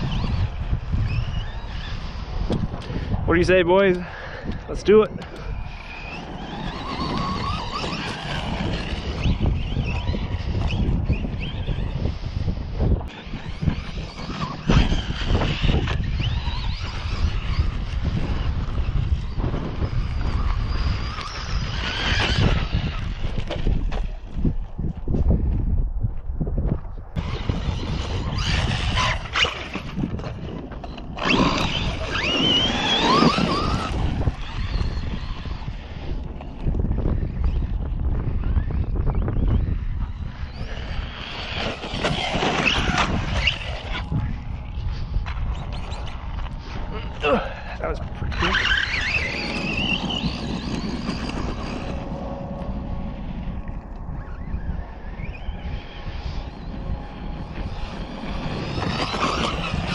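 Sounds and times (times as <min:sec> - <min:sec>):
wind rumble on microphone: 0:00.0 - 0:59.9
electric motor whining: 0:04.0 - 0:24.6, 0:27.2 - 0:59.9.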